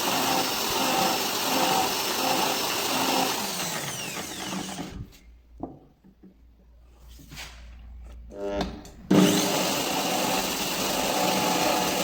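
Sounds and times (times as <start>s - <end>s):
electric drill whining: 0.0s - 5.2s, 9.1s - 12.0s.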